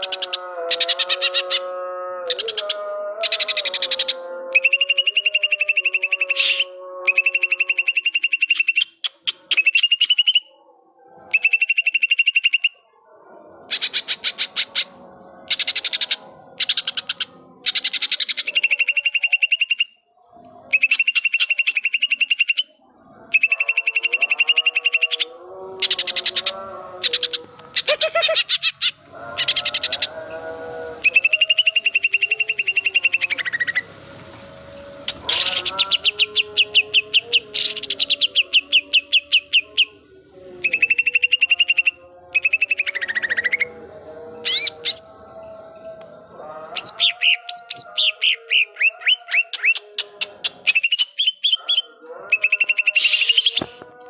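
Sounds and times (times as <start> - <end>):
bird singing rapid trills: 0.0 - 33.8, 40.6 - 49.8.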